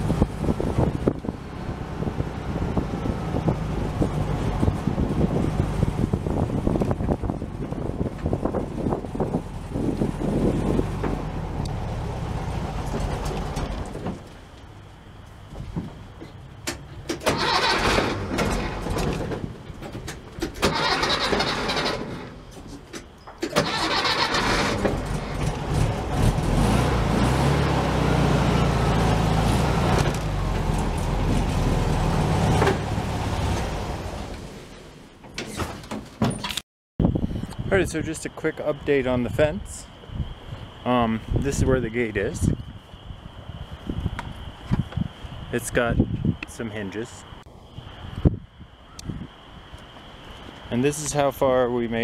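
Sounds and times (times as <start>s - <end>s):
car engine cranking and running: 0.0s - 14.9s, 15.9s - 35.4s.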